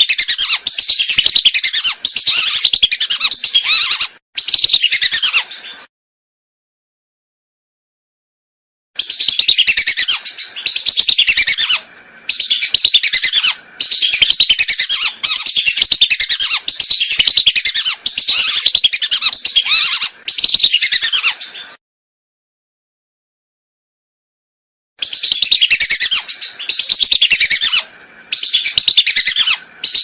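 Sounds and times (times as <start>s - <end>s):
whistling ducks calling: 0.0s - 5.6s, 9.0s - 21.6s, 25.0s - 30.0s.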